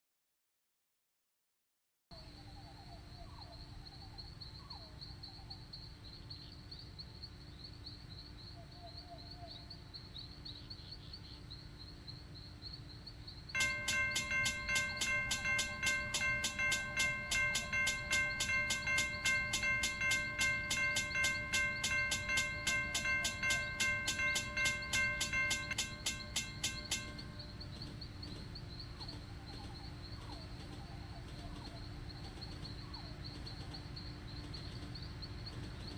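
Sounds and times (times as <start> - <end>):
railroad crossing bell ringing: 13.6 - 29.1
birds chirping: 13.6 - 35.9.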